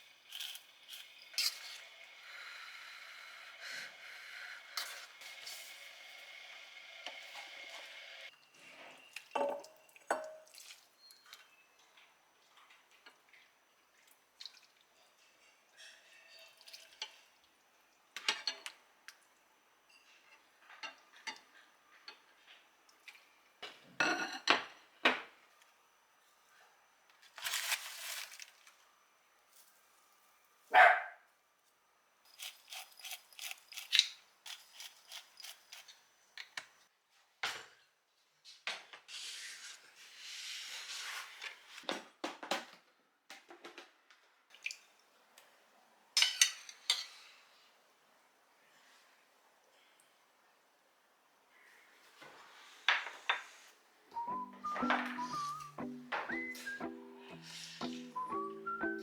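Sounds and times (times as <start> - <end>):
dishes and utensils clinking: 15.0 - 17.2, 23.6 - 24.9, 46.2 - 47.3.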